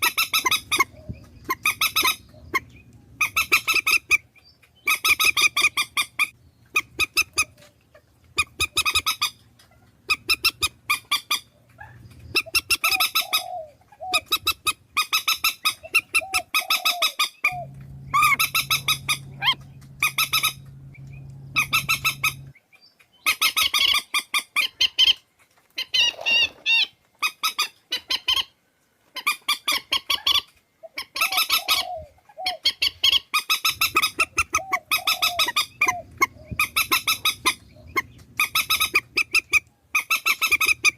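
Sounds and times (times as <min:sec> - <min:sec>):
swamphen rattling squawks: 0:00.0 - 0:07.6, 0:10.1 - 0:22.5, 0:32.8 - 0:40.9
low steady hum: 0:00.5 - 0:12.9, 0:17.4 - 0:22.6, 0:34.6 - 0:39.9.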